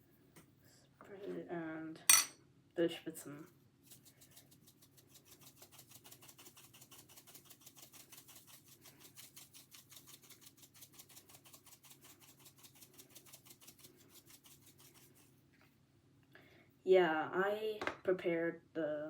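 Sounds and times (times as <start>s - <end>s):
rubbing strokes on fish: 3.8s - 15.4s.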